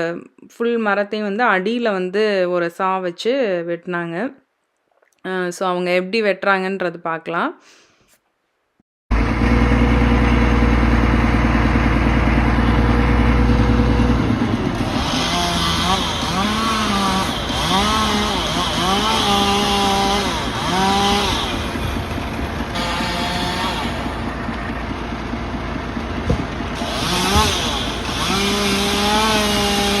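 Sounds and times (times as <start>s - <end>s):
powered saw running: 9.1s - 30.0s.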